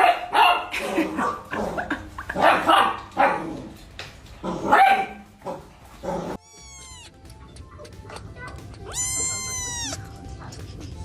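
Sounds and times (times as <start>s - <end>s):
dog barking: 0.0s - 1.4s, 2.4s - 3.6s, 4.5s - 6.4s.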